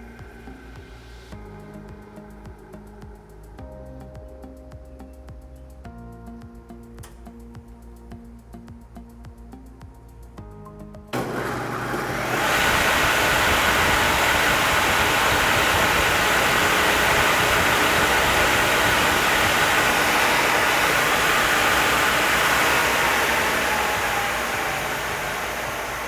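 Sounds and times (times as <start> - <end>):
planer running: 11.2 - 26.0.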